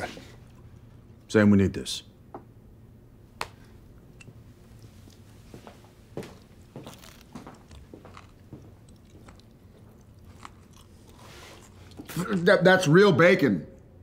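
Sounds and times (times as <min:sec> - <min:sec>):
crisp bacon being chewed: 0:04.1 - 0:05.3, 0:06.3 - 0:12.4.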